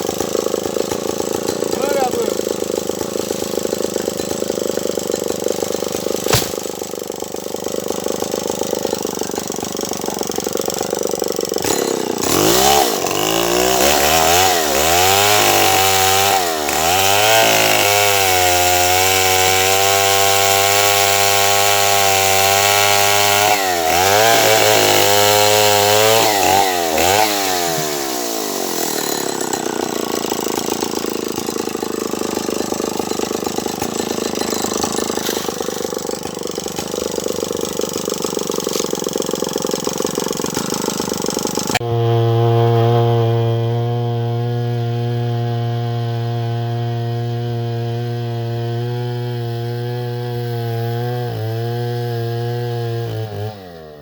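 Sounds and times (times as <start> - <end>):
chainsaw cutting wood: 0.0 - 54.0
sharp knock: 6.2 - 6.7.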